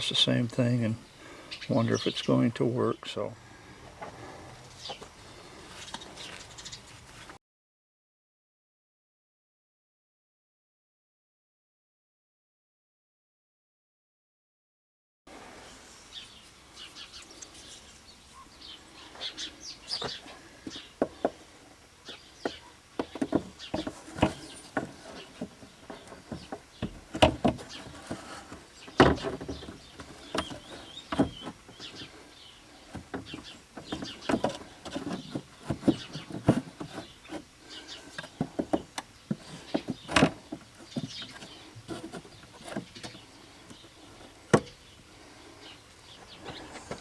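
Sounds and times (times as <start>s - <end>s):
hand tools clicking and clanking: 22.4s - 44.8s.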